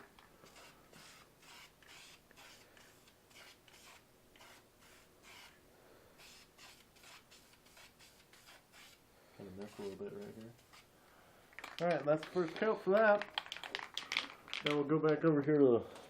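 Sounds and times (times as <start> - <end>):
spray paint can hissing: 0.4 - 5.6, 6.2 - 9.0, 9.6 - 10.9.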